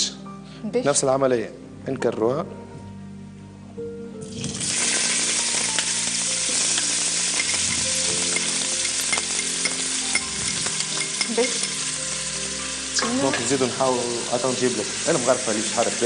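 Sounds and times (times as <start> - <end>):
onion sizzling in hot oil: 4.2 - 16.0.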